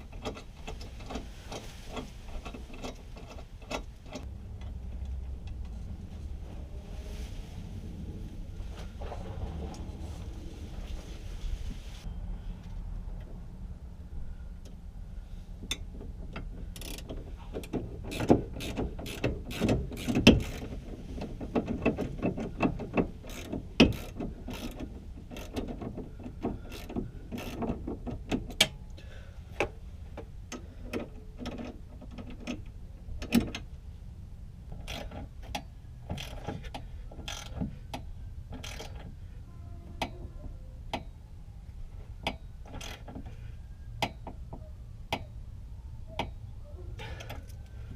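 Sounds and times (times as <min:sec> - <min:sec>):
ratchet wrench clicking: 0:16.7 - 0:20.7, 0:22.6 - 0:27.8, 0:34.8 - 0:39.1, 0:42.2 - 0:43.1.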